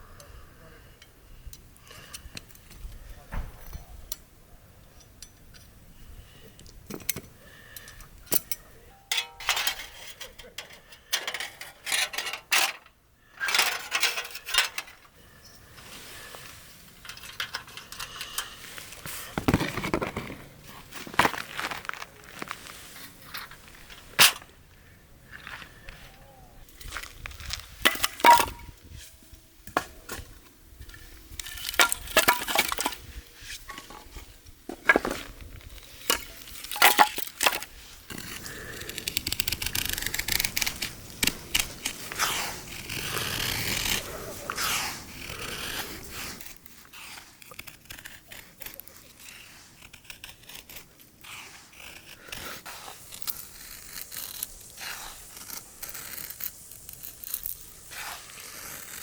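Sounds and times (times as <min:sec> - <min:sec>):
camp gear clinking and knocking: 0:06.8 - 0:15.1, 0:15.7 - 0:24.5, 0:27.8 - 0:28.8, 0:31.4 - 0:37.8.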